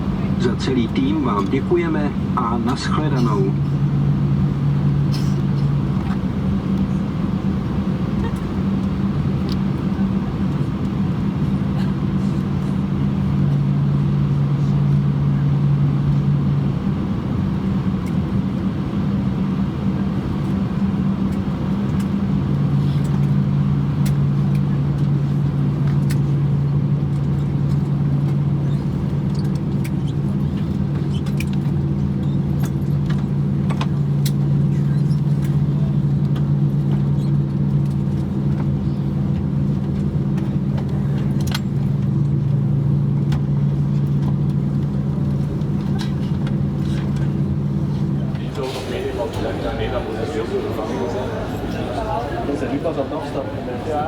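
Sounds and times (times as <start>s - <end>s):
low hum: 0.0s - 7.6s
aircraft cabin engine drone: 0.0s - 54.0s.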